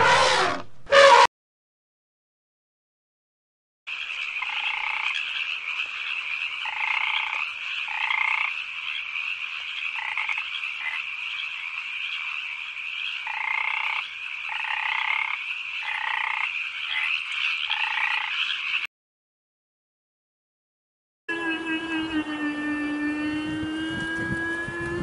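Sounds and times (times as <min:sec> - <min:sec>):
chorus of frogs calling: 0:03.9 - 0:18.9.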